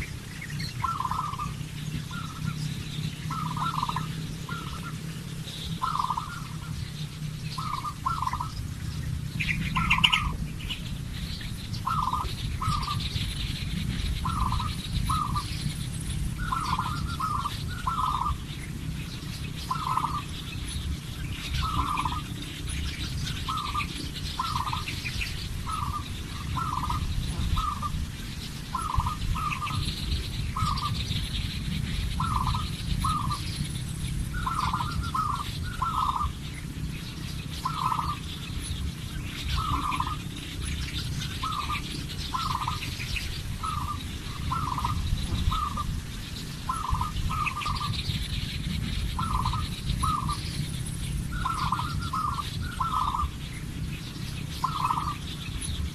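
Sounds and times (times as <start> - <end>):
steady low rumble: 0.0 - 55.9.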